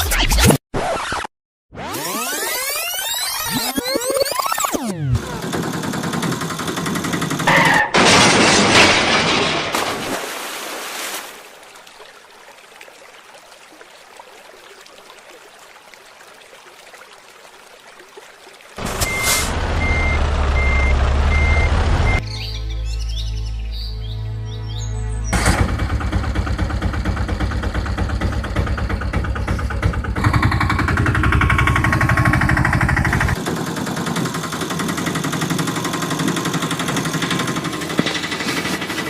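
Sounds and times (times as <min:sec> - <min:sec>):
loud machine noise: 0:05.2 - 0:07.8, 0:18.8 - 0:22.2, 0:25.4 - 0:39.0
diesel engine hum: 0:18.8 - 0:22.2, 0:25.3 - 0:39.0
reversing alarm beeping: 0:18.9 - 0:22.2.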